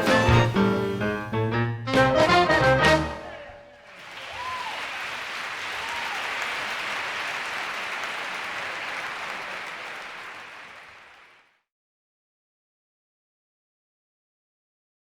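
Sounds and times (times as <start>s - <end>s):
brass note: 0.0s - 3.3s
faint calls from crowd: 3.2s - 10.8s
audience applauding: 3.4s - 11.6s.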